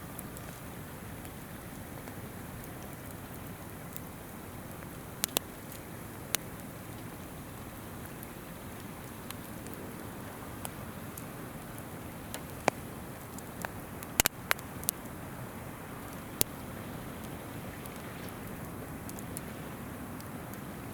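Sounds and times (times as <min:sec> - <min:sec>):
campfire crackling: 0:00.0 - 0:20.9
river flowing: 0:00.2 - 0:20.9
sharp fire pops: 0:12.3 - 0:15.0.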